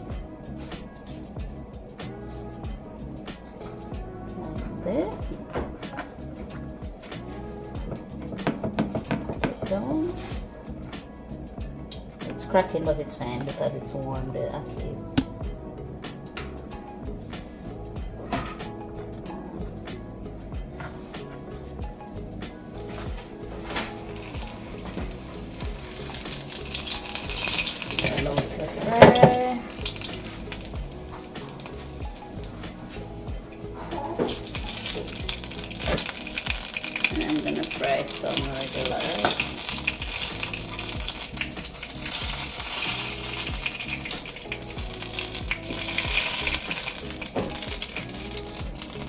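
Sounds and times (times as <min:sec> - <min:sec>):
background music: 0:00.0 - 0:49.0
dumplings sizzling in oil: 0:24.0 - 0:32.6, 0:34.0 - 0:49.0.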